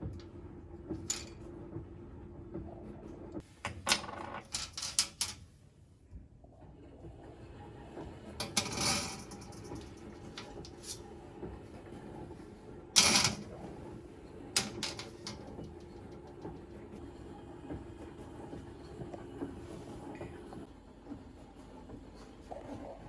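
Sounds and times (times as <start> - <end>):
household items clicking and knocking: 14.6 - 16.7.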